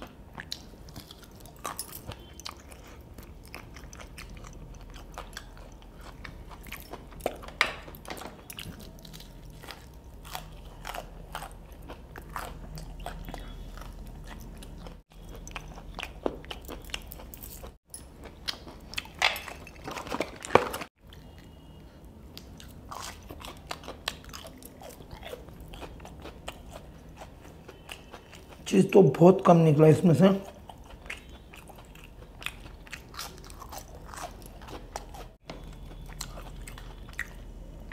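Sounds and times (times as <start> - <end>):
chewing: 0.0 - 28.7, 30.4 - 37.9
crunching fried chicken: 30.4 - 37.9.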